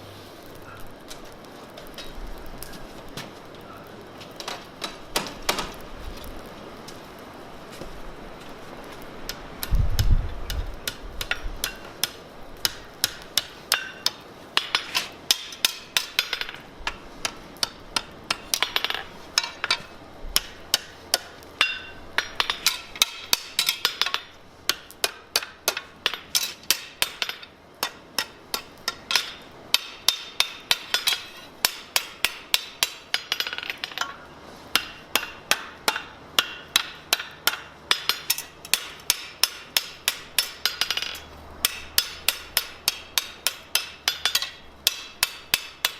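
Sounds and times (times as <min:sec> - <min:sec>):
hammer striking steel on anvil: 0:10.5 - 0:45.9.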